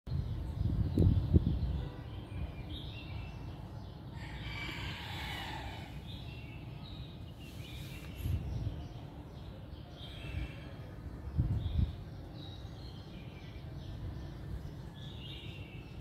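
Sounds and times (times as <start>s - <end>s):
birds chirping: 0.1s - 16.0s.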